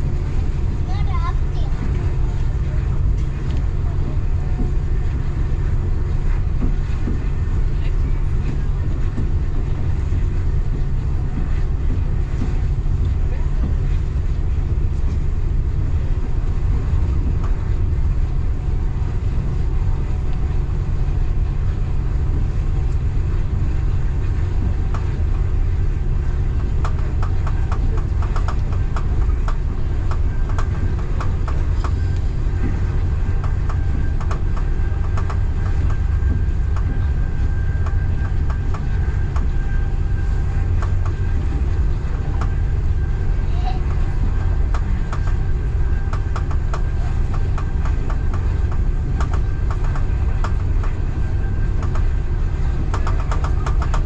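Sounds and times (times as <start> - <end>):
train rumbling on rails: 0.0 - 54.0
wheels clicking over track: 26.4 - 54.0.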